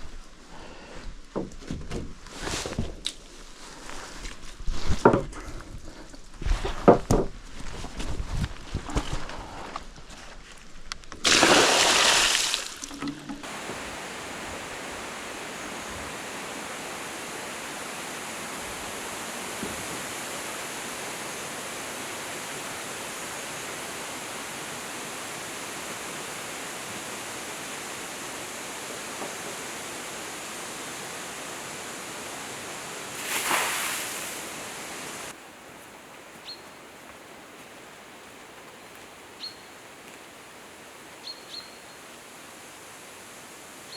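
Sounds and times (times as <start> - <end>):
water rushing: 11.2 - 35.4.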